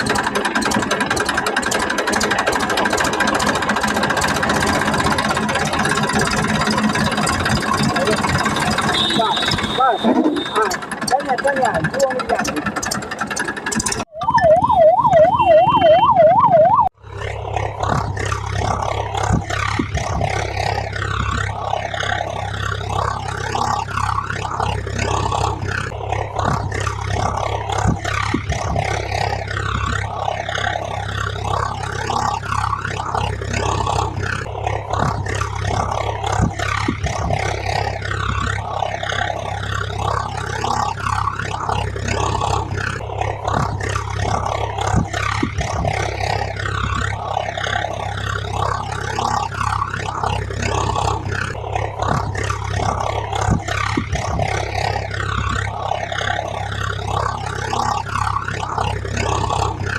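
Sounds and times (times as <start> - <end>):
continuous rough noise: 0.0 - 14.2, 16.8 - 59.9
warbling siren-like tone: 0.0 - 59.9
steady low hum: 16.9 - 59.9.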